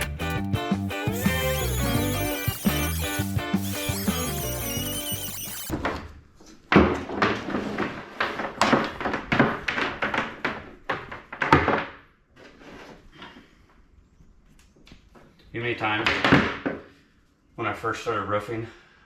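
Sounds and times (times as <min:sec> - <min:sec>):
background music: 0:00.0 - 0:05.7.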